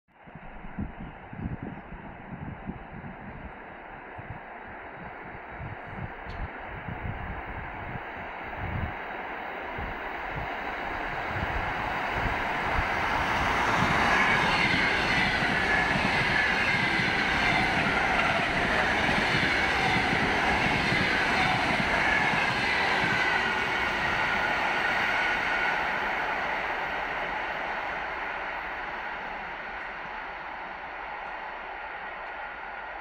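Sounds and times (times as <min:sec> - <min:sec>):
train wheels rumbling on rails: 0:00.2 - 0:33.0
train whine falling in pitch: 0:09.8 - 0:33.0.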